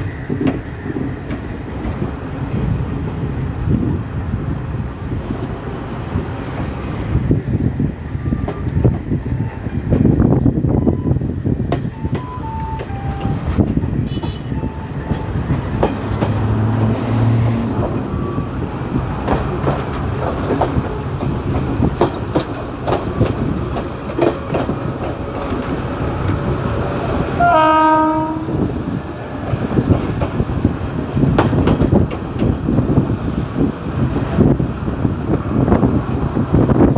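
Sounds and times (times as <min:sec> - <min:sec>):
train rumble: 0:00.0 - 0:36.9
train wheels clicking on rails: 0:00.0 - 0:36.9
train horn: 0:12.0 - 0:15.3, 0:27.2 - 0:28.8.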